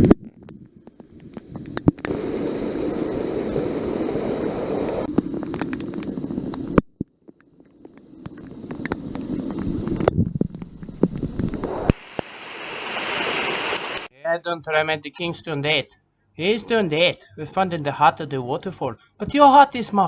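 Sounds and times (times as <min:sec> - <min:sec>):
wind noise on microphone: 0:00.0 - 0:06.9, 0:07.9 - 0:14.1
waterfall rushing: 0:11.3 - 0:14.1.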